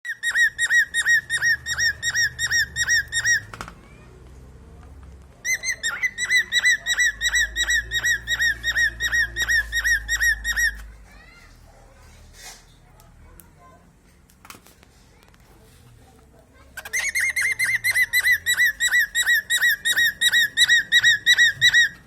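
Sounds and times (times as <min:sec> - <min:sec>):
cockatiel whistling: 0:00.1 - 0:03.5, 0:05.5 - 0:10.8, 0:16.9 - 0:22.0.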